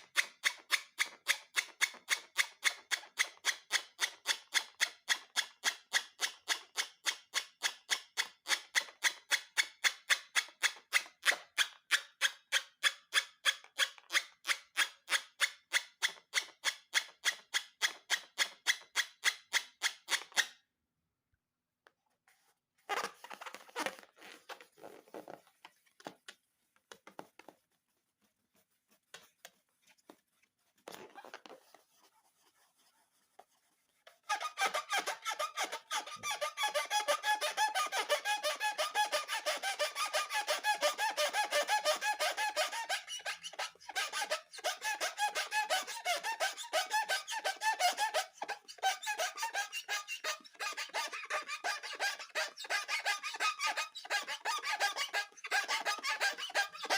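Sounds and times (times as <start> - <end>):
squeaky rubbing strokes: 22.8 - 26.3, 27.1 - 56.9.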